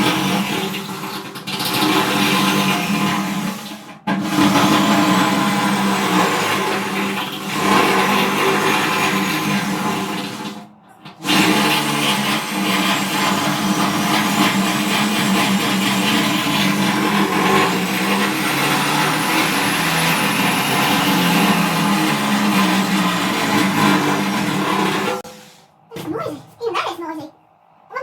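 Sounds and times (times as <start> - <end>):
power tool whining in steel: 11.2 - 25.6.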